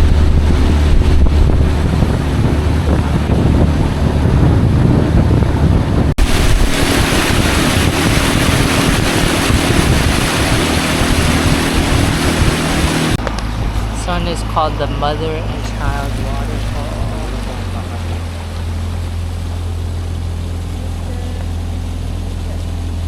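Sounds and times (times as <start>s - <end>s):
wind buffeting microphone: 0.0s - 18.2s
boat engine running: 0.0s - 23.0s
water rushing: 0.0s - 23.0s.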